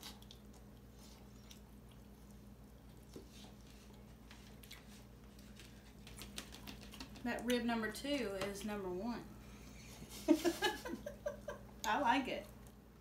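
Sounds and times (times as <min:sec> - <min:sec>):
people chewing: 0:00.0 - 0:07.6
steady low hum: 0:00.0 - 0:13.0.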